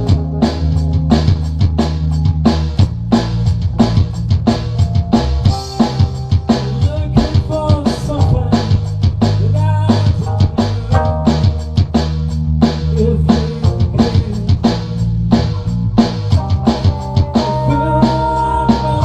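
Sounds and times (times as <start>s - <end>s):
band playing live: 0.0s - 19.0s
bass notes: 0.0s - 19.0s
drum kit beat: 0.0s - 19.0s
guitar lines: 16.2s - 19.0s.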